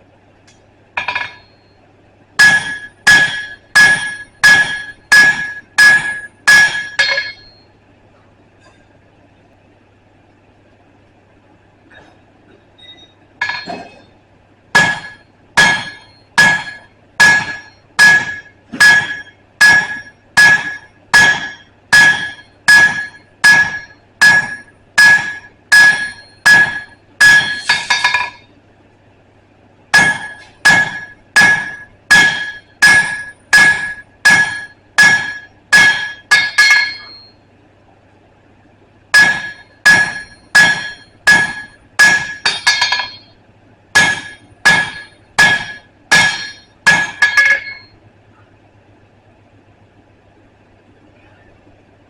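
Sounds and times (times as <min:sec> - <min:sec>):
hammer striking steel on anvil: 0:01.0 - 0:01.6, 0:02.4 - 0:07.6, 0:13.4 - 0:14.1, 0:14.8 - 0:28.5, 0:29.9 - 0:37.4, 0:39.1 - 0:43.4, 0:44.0 - 0:48.0.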